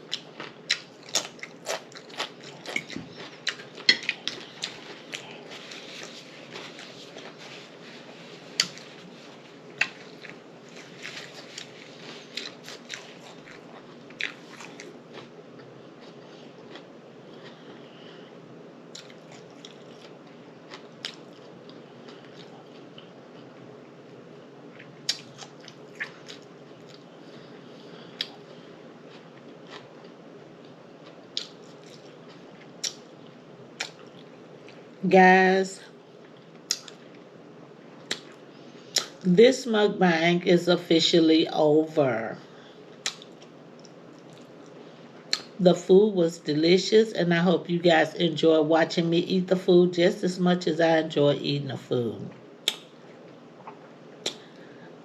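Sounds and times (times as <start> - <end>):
chewing and crunching food: 0.0 - 18.3, 18.9 - 35.0, 36.2 - 37.3, 37.9 - 39.3, 42.8 - 45.6, 52.3 - 54.9.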